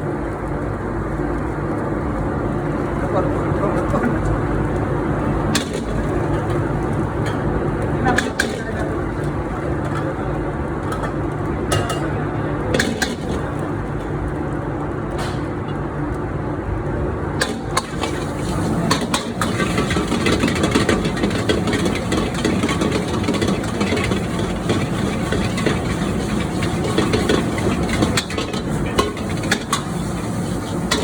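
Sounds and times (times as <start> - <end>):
stir-frying rumble and crackle: 0.0 - 31.0.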